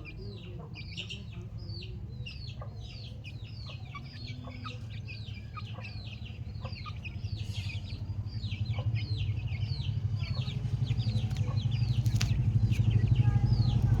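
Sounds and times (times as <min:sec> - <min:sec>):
chickens chirping: 0:00.0 - 0:14.0
low rumble: 0:07.2 - 0:14.0.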